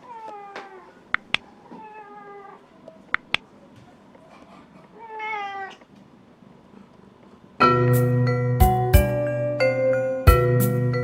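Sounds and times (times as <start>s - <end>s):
cat meowing: 1.6s - 2.7s, 5.0s - 5.9s
chiming music: 7.6s - 11.0s.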